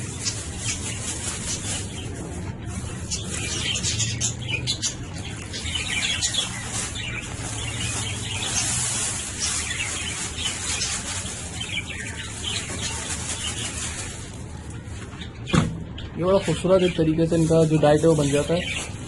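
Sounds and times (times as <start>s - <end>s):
budgerigars chirping and chattering: 0.0s - 19.0s.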